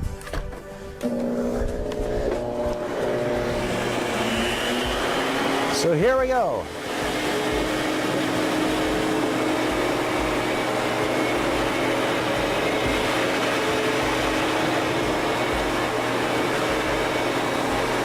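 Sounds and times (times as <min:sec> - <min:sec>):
vacuum cleaner whirring on carpet: 0:01.0 - 0:18.0.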